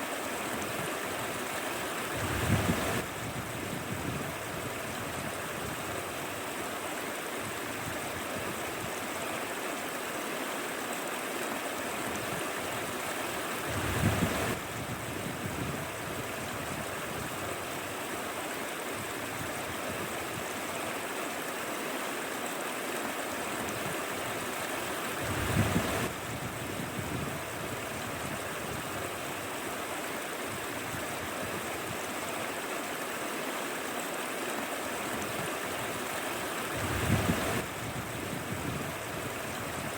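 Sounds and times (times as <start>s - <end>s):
stream rushing and gurgling: 0.0s - 39.9s
wind buffeting microphone: 2.1s - 5.8s, 13.7s - 17.5s, 25.2s - 29.2s, 36.7s - 39.9s.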